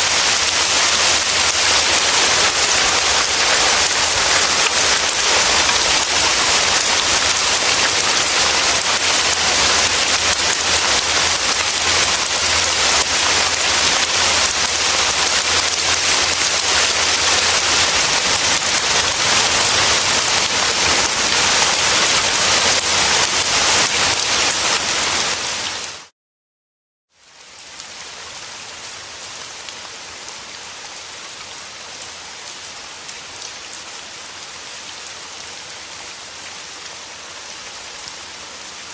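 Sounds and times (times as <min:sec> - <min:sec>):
heavy rain hiss: 0:00.0 - 0:26.0.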